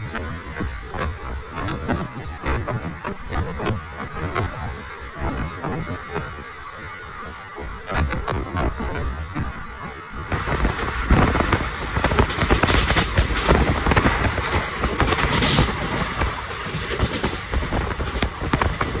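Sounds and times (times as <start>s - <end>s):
train rushing noise: 10.2s - 19.0s
wheels clattering over rails: 10.3s - 19.0s.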